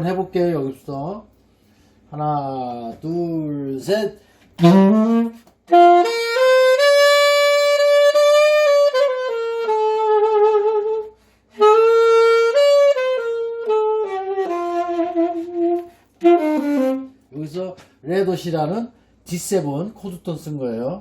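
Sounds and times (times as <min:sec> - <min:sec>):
saxophone melody: 0:04.6 - 0:17.4.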